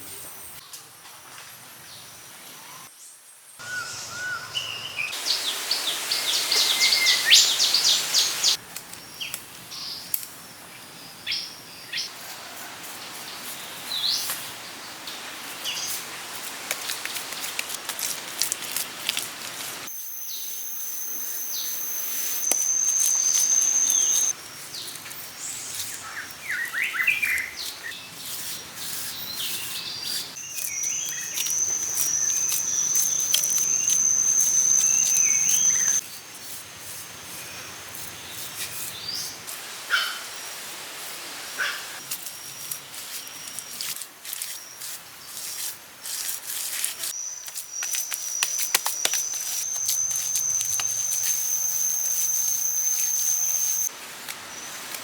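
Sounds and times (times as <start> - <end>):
birds chirping: 3.6 - 8.6, 20.0 - 36.0, 47.2 - 53.9
steady high whine: 19.9 - 24.3, 49.4 - 53.9.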